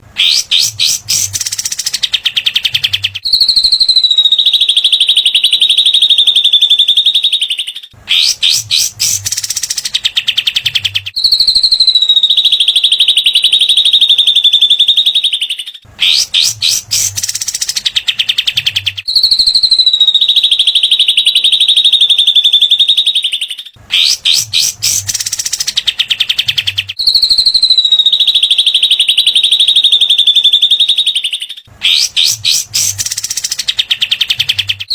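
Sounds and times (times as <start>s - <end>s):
bird chattering notes: 0.2s - 2.8s, 8.1s - 10.2s, 16.0s - 18.6s, 24.0s - 26.6s, 31.8s - 34.7s
high buzzing bird trill: 0.2s - 7.3s, 8.1s - 10.6s, 16.0s - 23.2s, 23.9s - 34.9s.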